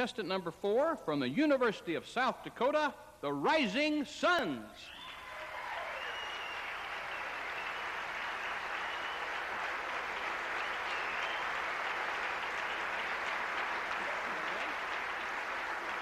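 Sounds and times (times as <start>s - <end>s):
audience applauding: 5.0s - 16.0s.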